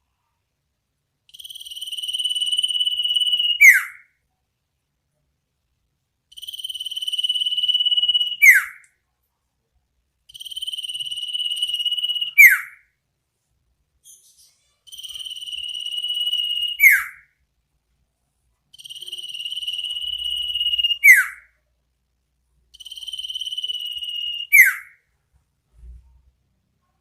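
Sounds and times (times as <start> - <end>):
bird trill ending in falling whistle: 23.0 - 24.9.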